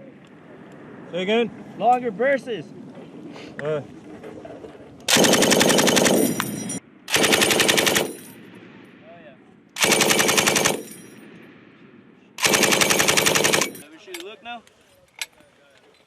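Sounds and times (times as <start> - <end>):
machine gun firing bursts: 5.1 - 6.5, 7.1 - 8.4, 9.8 - 11.0, 12.4 - 13.8.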